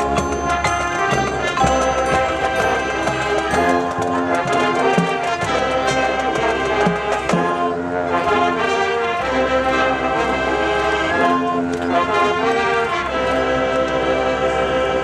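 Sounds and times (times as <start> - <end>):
drums steady beat: 0.0 - 11.6
brass sustained chords: 0.0 - 15.0
marching band playing: 0.0 - 15.0.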